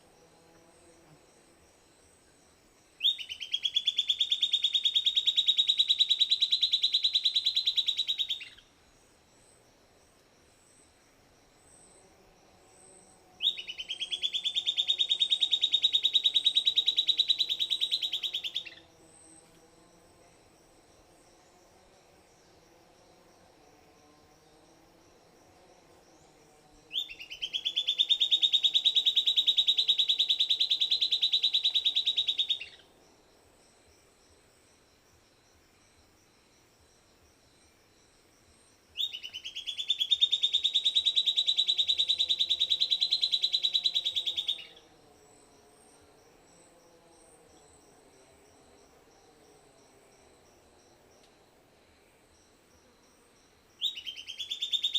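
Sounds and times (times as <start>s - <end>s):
faint insect buzzing: 0.0s - 54.9s
bird singing rapid trill: 3.0s - 8.7s, 13.4s - 18.9s, 26.9s - 32.8s, 39.0s - 44.9s, 53.8s - 54.9s.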